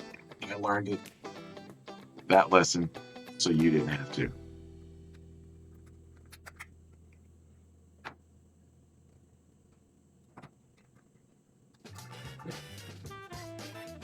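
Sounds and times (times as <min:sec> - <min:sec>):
guitar background music: 0:00.0 - 0:08.2, 0:11.8 - 0:14.0
faint low hum: 0:04.2 - 0:12.8.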